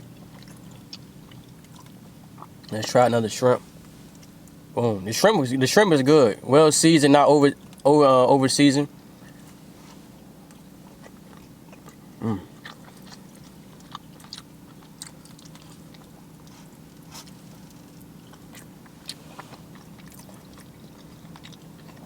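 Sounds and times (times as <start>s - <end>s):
man chewing food: 0.0s - 3.0s, 3.6s - 4.7s, 9.0s - 22.0s
steady low hum: 0.0s - 22.0s
man humming mm: 12.2s - 12.6s.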